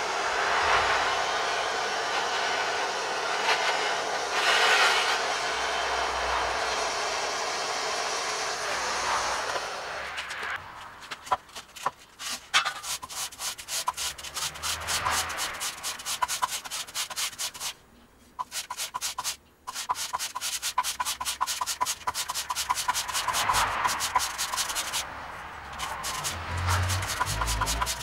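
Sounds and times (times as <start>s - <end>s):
rubbing strokes on steel knife blade: 11.8s - 25.0s, 25.7s - 28.0s.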